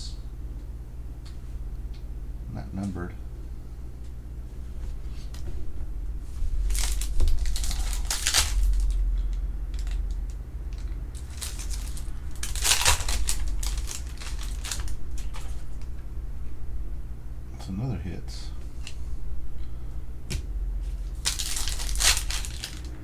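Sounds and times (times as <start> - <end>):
wrapper crinkling and tearing: 6.6 - 15.9, 20.9 - 23.0.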